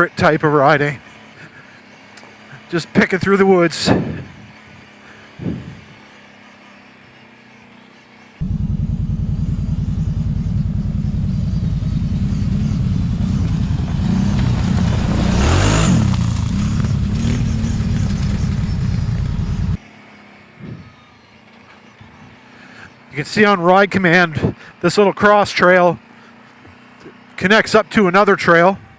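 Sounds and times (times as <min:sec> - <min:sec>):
atv engine revving: 0:08.4 - 0:19.8.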